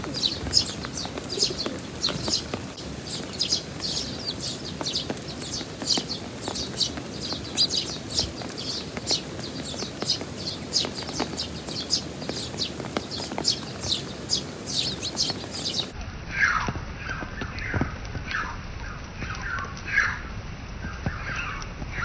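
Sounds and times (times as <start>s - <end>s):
sparrow chirping: 0.0s - 15.9s
heavy rain hiss and patter: 0.0s - 16.0s.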